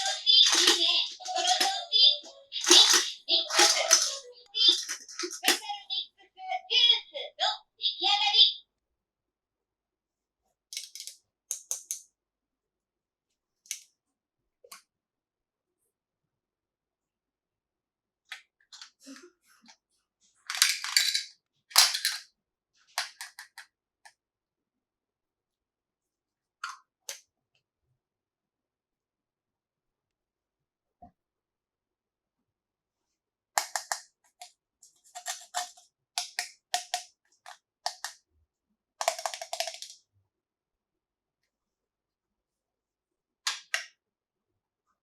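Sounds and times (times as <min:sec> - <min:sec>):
plastic toy pieces clicking: 0:00.0 - 0:05.7, 0:10.7 - 0:12.1, 0:20.5 - 0:22.3, 0:22.9 - 0:23.7, 0:33.6 - 0:38.2, 0:39.0 - 0:40.0.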